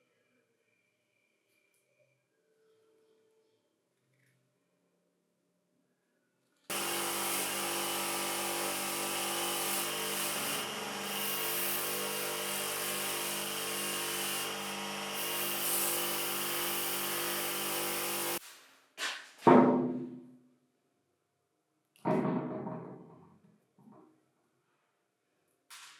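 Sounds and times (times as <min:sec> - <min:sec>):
power tool running: 0:06.7 - 0:18.4.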